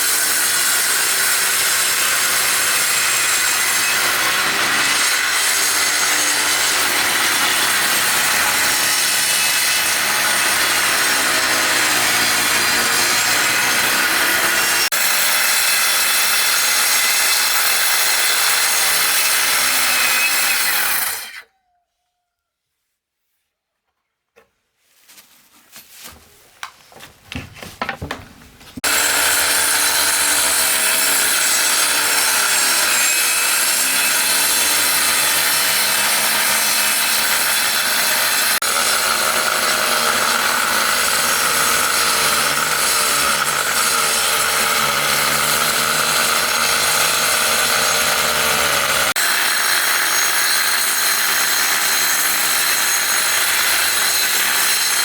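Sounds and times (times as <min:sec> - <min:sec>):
power tool cutting wood: 0:00.0 - 0:21.5, 0:28.8 - 0:55.0
knocks and handling: 0:23.8 - 0:28.8.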